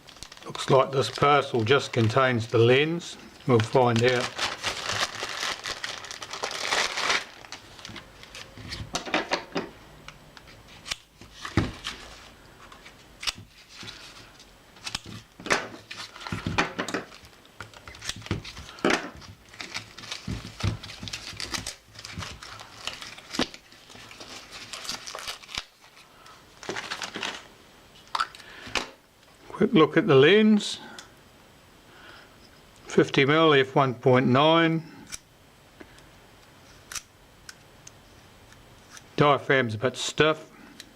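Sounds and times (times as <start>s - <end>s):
wrapping crinkling and tearing: 0.0s - 8.9s, 10.5s - 27.5s.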